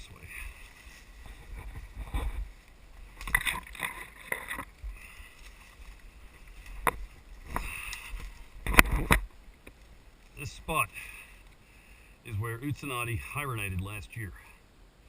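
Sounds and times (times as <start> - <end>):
leaves and branches rustling: 0.0 - 14.9
footsteps in undergrowth: 0.1 - 10.5
camera rumble: 0.1 - 10.8.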